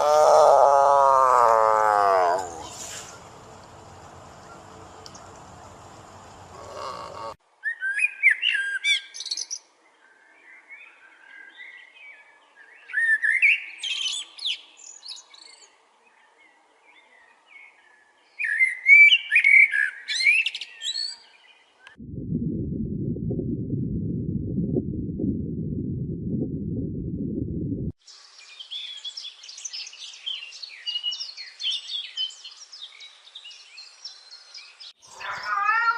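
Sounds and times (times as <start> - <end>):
small bird warbling: 35.0 - 35.9.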